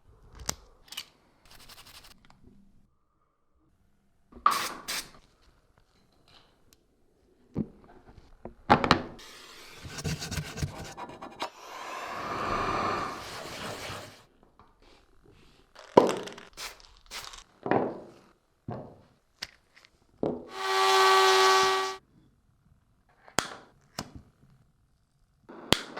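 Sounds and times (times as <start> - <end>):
scraping: 20.5 - 22.0.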